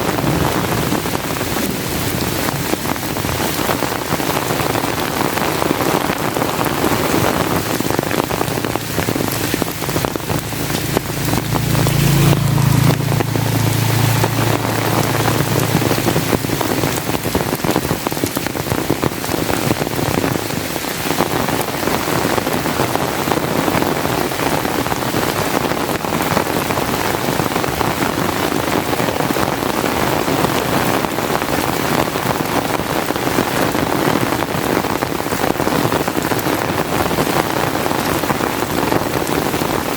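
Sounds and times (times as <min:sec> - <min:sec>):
steady rain falling: 0:00.0 - 0:39.9
low rumble: 0:06.2 - 0:20.2.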